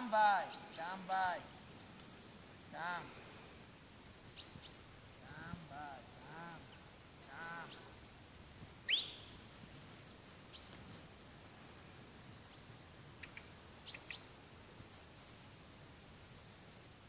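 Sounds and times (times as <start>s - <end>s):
small birds chirping: 0.3s - 3.6s, 4.3s - 8.2s, 8.8s - 11.0s, 12.4s - 15.6s
sharp rising bird call: 8.9s - 9.3s.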